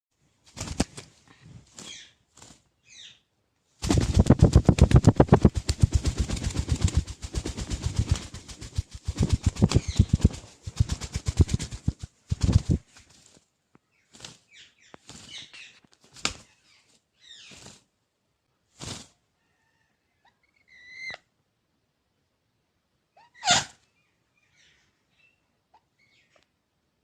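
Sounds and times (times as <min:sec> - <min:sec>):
parakeet wings beating rapidly: 0:00.5 - 0:02.6, 0:03.8 - 0:13.4, 0:14.1 - 0:15.5, 0:16.1 - 0:16.6
bird chirps: 0:02.8 - 0:03.3, 0:16.5 - 0:17.6, 0:23.2 - 0:26.4.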